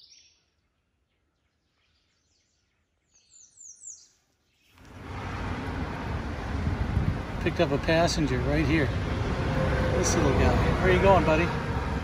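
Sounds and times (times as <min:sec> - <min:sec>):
bird chirping: 0:00.0 - 0:04.9
steady rushing noise: 0:04.8 - 0:12.0.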